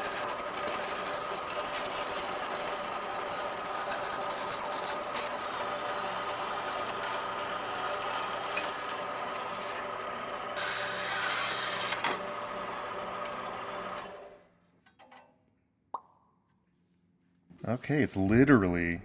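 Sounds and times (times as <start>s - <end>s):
machine tool cutting steel: 10.5s - 12.2s.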